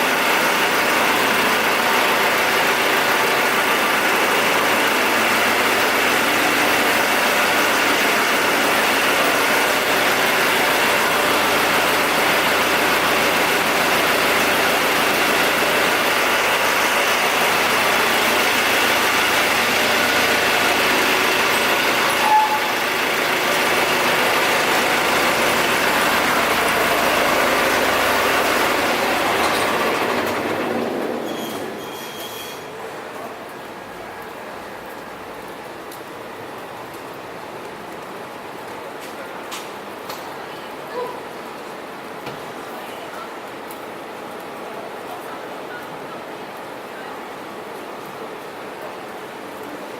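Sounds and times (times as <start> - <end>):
diesel generator running: 0.0 - 31.8.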